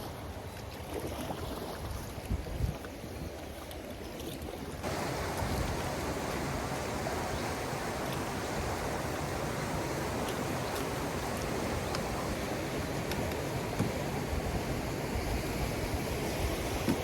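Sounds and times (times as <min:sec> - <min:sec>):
stream water rushing: 0:04.6 - 0:17.0.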